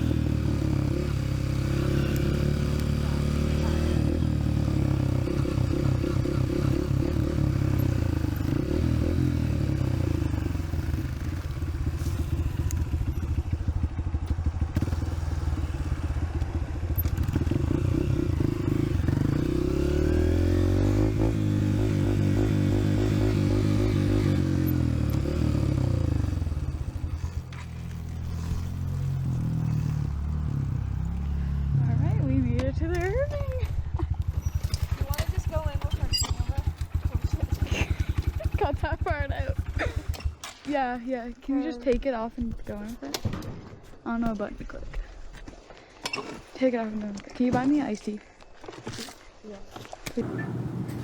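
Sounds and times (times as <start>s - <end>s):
dirt bike engine revving: 0.0s - 16.3s, 16.9s - 33.6s, 34.3s - 40.4s.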